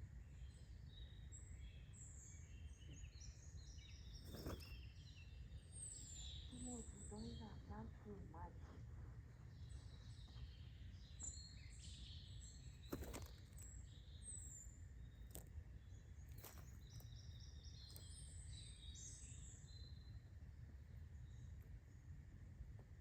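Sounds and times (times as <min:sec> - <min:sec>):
small birds chirping: 0:00.0 - 0:22.2
low outdoor rumble: 0:04.2 - 0:11.1.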